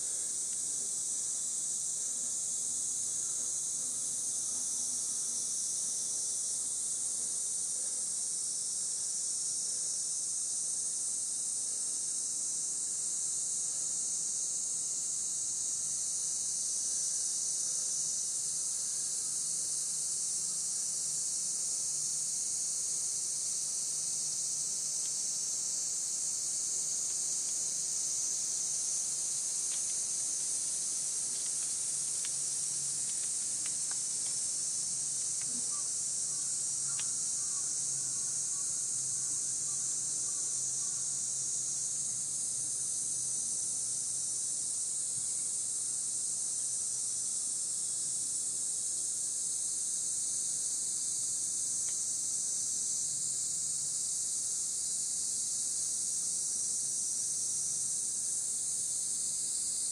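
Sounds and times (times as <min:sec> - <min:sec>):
insect chorus: 0:00.0 - 0:59.9
faint ticks and soft chirps: 0:28.6 - 0:42.6.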